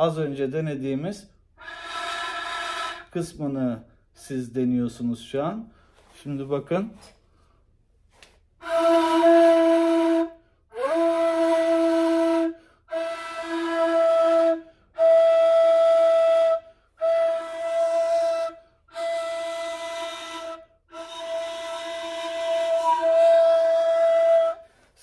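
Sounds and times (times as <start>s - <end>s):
breathy reed flute notes: 1.6s - 3.2s, 8.6s - 25.0s.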